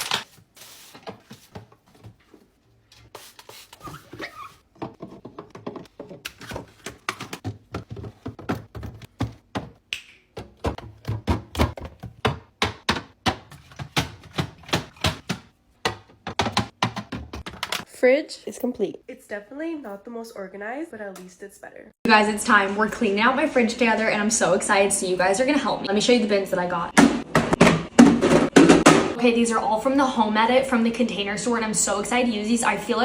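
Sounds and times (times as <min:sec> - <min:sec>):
containers knocking on fridge shelves: 0:04.7 - 0:17.8.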